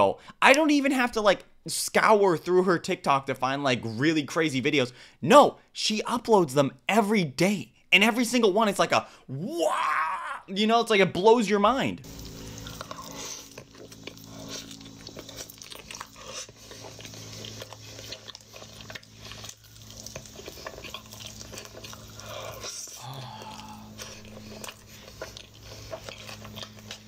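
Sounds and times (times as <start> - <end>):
crunchy biting and chewing: 12.0 - 27.0
steady low hum: 12.0 - 27.0.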